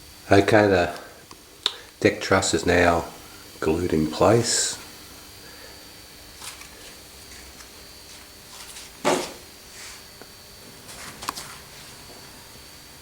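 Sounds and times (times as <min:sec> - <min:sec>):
knocks on workbench: 0:09.0 - 0:09.4.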